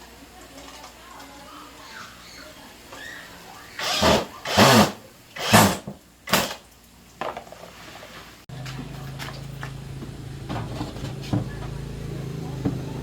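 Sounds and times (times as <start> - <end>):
tools knocking and clattering: 10.0 - 11.8.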